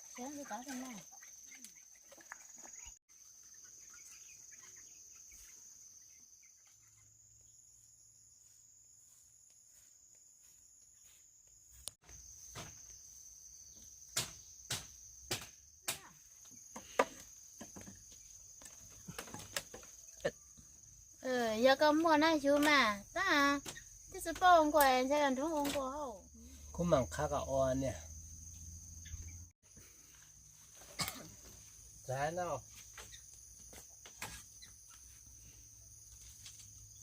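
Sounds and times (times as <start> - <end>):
insects chirring: 0.0 - 37.0
blade chopping bamboo: 14.2 - 16.1.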